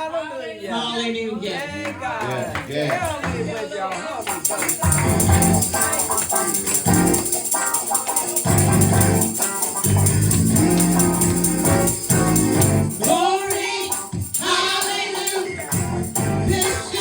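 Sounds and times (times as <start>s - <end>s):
people singing: 0.0s - 5.8s, 12.8s - 17.0s
gospel band playing: 2.0s - 17.0s
fast tambourine shake: 4.2s - 17.0s.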